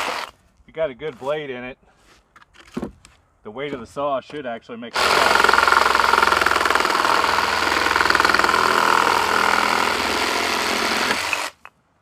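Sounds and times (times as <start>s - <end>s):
reciprocating saw cutting wood: 5.0s - 11.7s.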